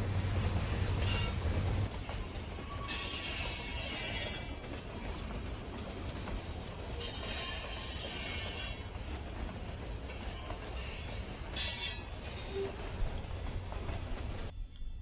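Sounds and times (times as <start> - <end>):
wheel and rail hissing: 0.0 - 14.5
freight train rumbling past: 0.0 - 14.6.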